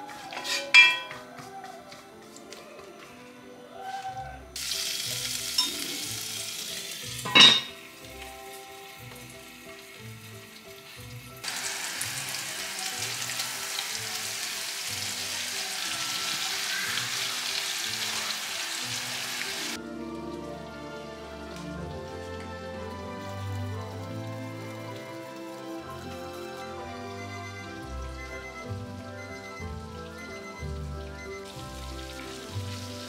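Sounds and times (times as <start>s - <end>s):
soft background music: 0.0s - 33.0s
pot lid clanking: 0.4s - 1.1s, 5.6s - 5.8s, 7.2s - 7.8s
fish frying in a pan: 4.6s - 21.1s, 22.2s - 26.8s, 28.6s - 33.0s
beans sizzling in oil: 4.6s - 28.0s, 28.6s - 33.0s.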